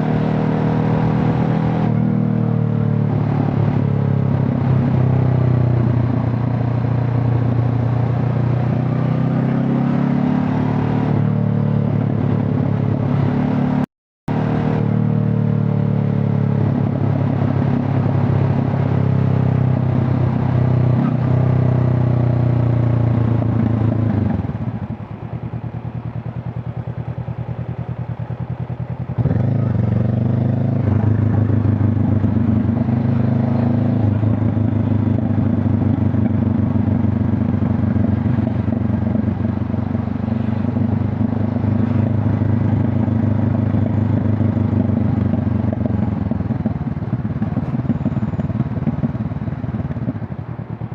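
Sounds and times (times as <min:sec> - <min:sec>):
motorcycle engine and exhaust: 0:00.0 - 0:50.9.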